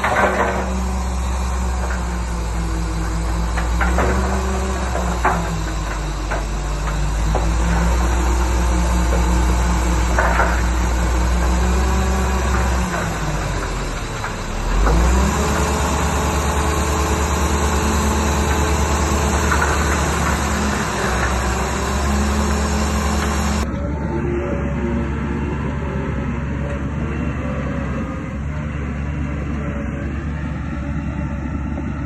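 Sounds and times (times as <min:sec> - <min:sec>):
bulldozer diesel engine running: 0:00.0 - 0:32.0.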